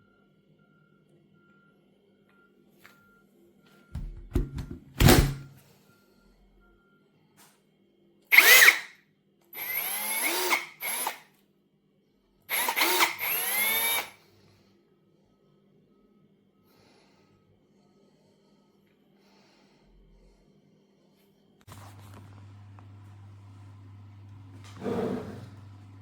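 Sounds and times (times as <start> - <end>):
knocks from handling tool: 4.0 - 5.3
cordless drill motor whine: 8.3 - 8.9, 9.6 - 11.2, 12.5 - 14.2.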